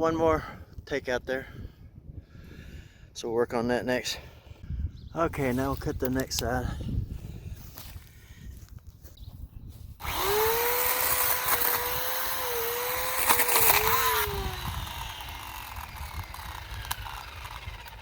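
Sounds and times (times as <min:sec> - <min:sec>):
electric chainsaw cutting wood: 0:10.0 - 0:18.0.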